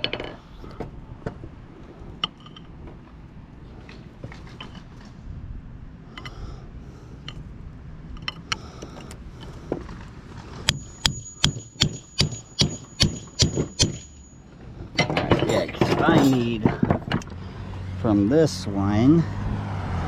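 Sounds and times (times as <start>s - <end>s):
hammer striking metal: 10.7s - 14.4s
high ringing tone: 10.7s - 14.5s.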